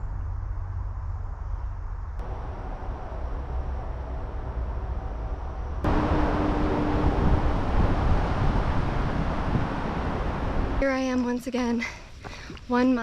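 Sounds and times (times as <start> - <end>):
outdoor noise: 0.0 - 13.0
wind rumbling on microphone: 0.2 - 13.0
faint steady hum: 0.4 - 13.0.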